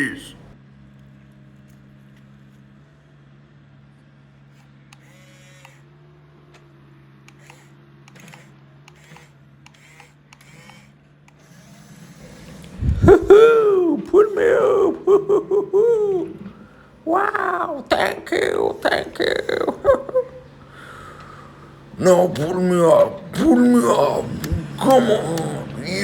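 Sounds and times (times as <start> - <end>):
small electric motors humming: 4.5 - 6.2, 7.2 - 13.0
short whirring wobbles: 12.1 - 26.0.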